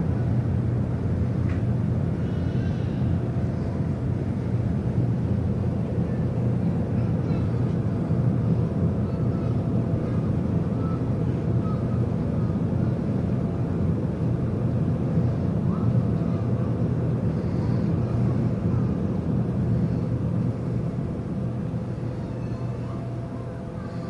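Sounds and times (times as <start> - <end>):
faint steady hum: 0.0 - 24.0
low rumble of ship machinery: 0.0 - 24.0.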